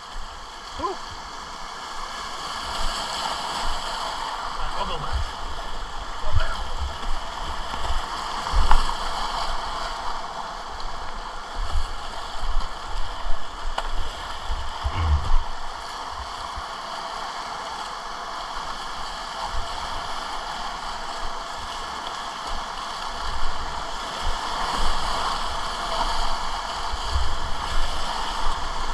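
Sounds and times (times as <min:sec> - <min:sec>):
dull low thumps: 0:14.8 - 0:15.7.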